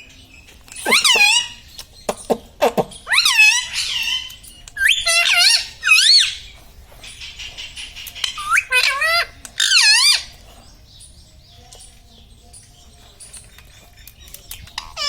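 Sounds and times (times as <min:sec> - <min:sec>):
parrot calls: 0:00.7 - 0:01.8, 0:02.7 - 0:10.4, 0:14.6 - 0:15.0.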